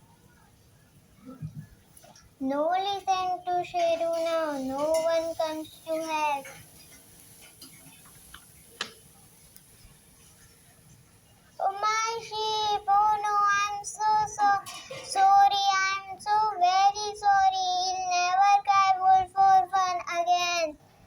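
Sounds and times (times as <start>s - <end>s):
child singing: 2.4s - 6.6s, 11.6s - 20.8s.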